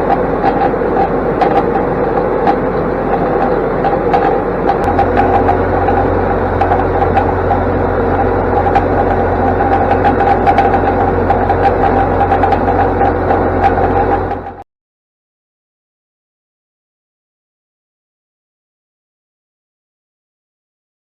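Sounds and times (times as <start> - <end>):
deep hum: 0.0 - 14.6
diesel tractor running: 0.0 - 14.6
round baler clattering: 0.0 - 14.6.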